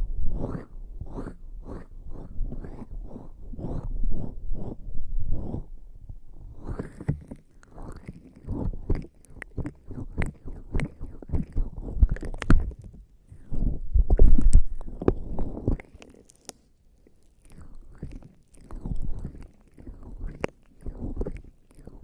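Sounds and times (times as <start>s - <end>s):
small sticky clicks: 6.6s - 22.0s.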